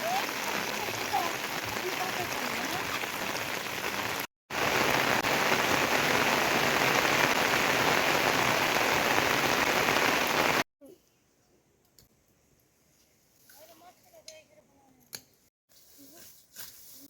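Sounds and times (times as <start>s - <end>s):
heavy rain falling: 0.0s - 10.6s.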